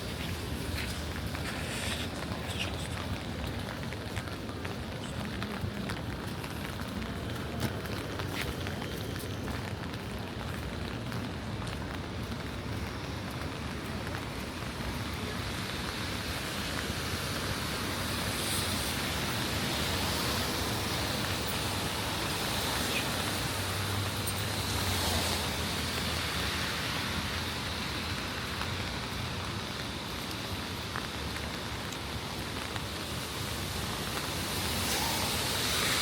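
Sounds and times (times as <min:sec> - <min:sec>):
rain on pavement: 0:00.0 - 0:36.0
vehicle passing on wet street: 0:00.0 - 0:36.0.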